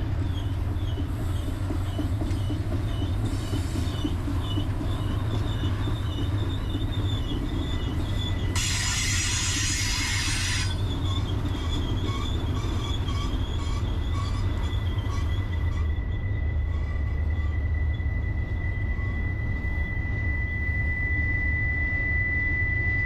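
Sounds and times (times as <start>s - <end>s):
freight train rumbling past: 0.0s - 23.0s
steel wheels squealing on rail: 0.0s - 23.0s
burst of hiss: 8.6s - 10.8s.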